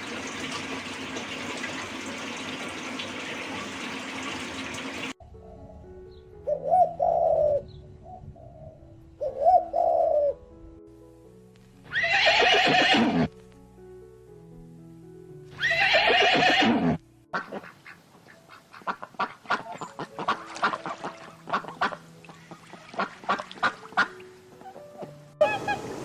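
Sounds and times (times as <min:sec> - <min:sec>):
background music: 0:04.8 - 0:26.0
horse whinnying: 0:11.9 - 0:13.3, 0:15.6 - 0:17.0.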